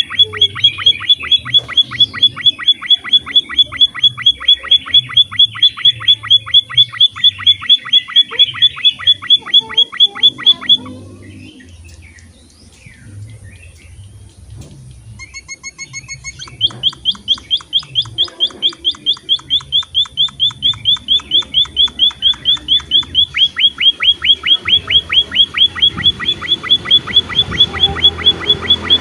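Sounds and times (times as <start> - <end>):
finch chirping rapidly: 0.0 - 29.0.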